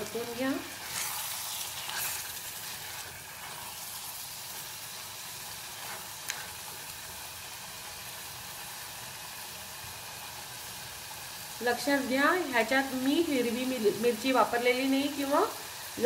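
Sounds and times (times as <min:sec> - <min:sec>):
food sizzling in a pot: 0:00.0 - 0:16.0
spatula stirring: 0:00.1 - 0:07.0.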